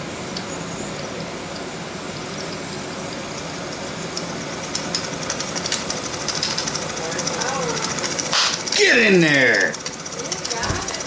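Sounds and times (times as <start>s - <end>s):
steam boiler hissing: 0.0s - 11.0s
steam engine ticking: 4.1s - 11.0s.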